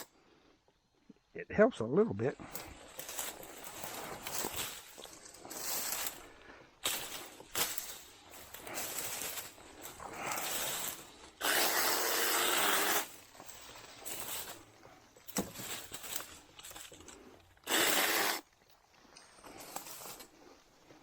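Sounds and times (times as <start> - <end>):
brush rustling: 2.4 - 21.0
battery chainsaw cutting wood: 10.4 - 13.2, 17.6 - 18.4.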